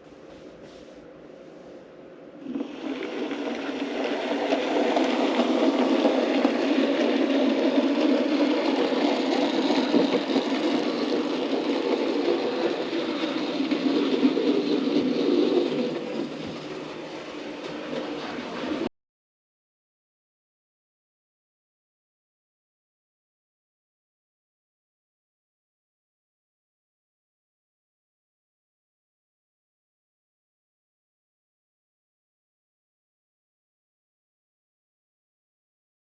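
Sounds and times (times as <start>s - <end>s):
model train rumbling on track: 2.4s - 18.9s.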